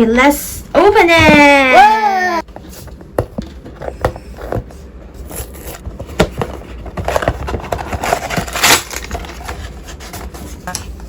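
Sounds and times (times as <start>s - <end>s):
cardboard scraping and crackling: 2.6s - 10.8s.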